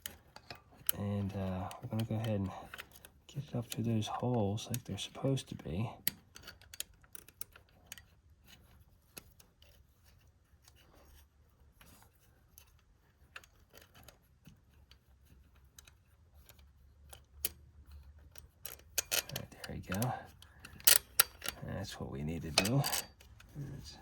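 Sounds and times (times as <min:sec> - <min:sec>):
small metal clicks and scrapes: 0:00.0 - 0:24.0
low steady hum: 0:14.0 - 0:24.0.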